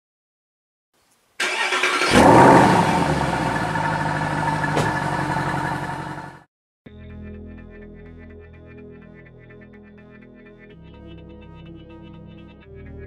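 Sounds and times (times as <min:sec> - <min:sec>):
car engine starting and idling: 0:01.4 - 0:06.4.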